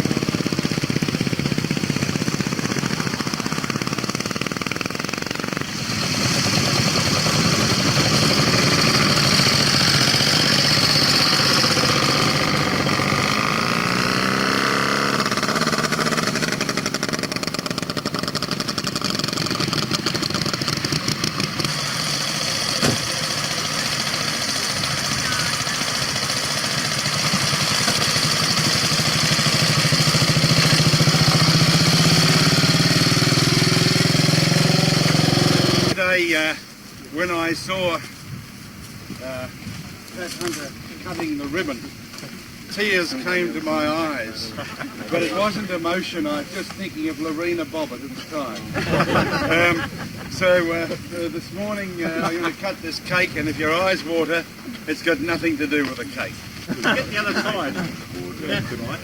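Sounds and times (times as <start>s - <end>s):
motorcycle engine revving: 0.0s - 36.0s
motorcycle engines running: 0.0s - 59.0s.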